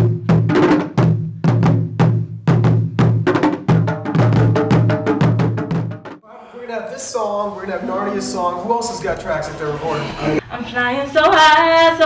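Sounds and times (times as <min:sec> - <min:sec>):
drum struck in steady rhythm: 0:00.0 - 0:06.2.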